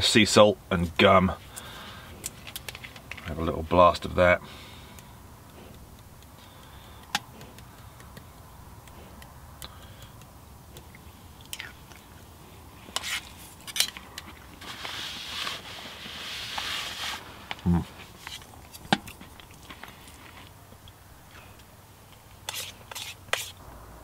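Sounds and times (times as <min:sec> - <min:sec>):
man chewing food: 0:04.6 - 0:14.6, 0:17.4 - 0:21.6.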